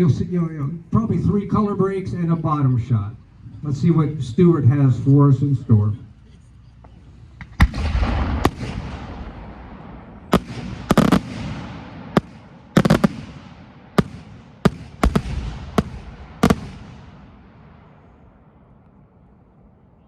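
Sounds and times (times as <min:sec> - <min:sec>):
rolling echo: 0:06.8 - 0:20.0
firework bangs: 0:07.4 - 0:18.5.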